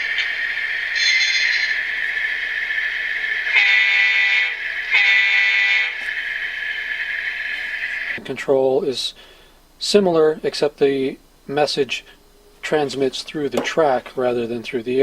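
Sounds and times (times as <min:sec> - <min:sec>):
model diesel engine sound: 0:00.0 - 0:08.2
locomotive horn blasts: 0:01.0 - 0:01.8, 0:03.5 - 0:06.0.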